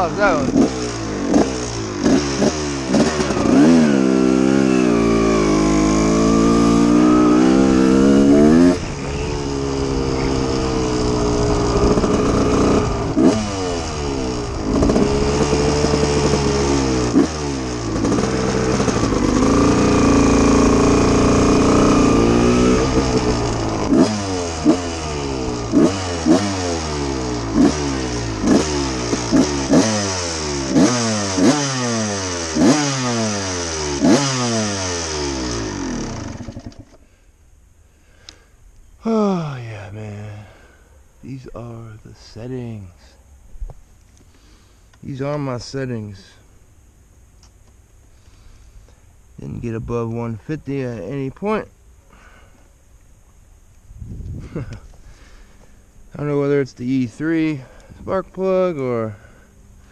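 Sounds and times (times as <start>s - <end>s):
two-stroke engine revving high: 0.0s - 37.0s.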